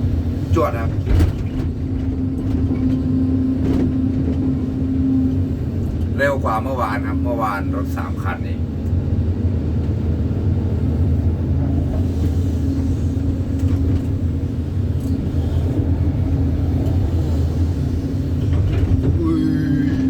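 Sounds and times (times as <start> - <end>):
excavator diesel engine drone: 0.0 - 20.0.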